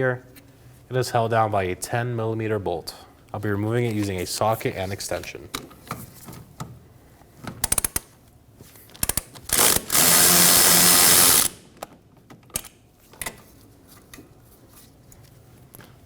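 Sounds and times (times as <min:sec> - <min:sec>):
ratchet clicks: 0:07.6 - 0:08.1, 0:09.0 - 0:11.6
power tool running: 0:09.5 - 0:11.6.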